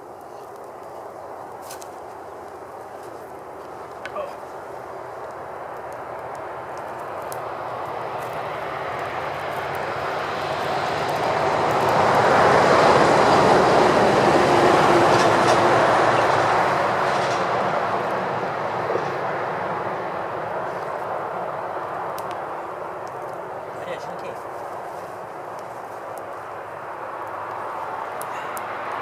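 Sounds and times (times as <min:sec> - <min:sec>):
vehicle passing by: 0:07.3 - 0:22.9.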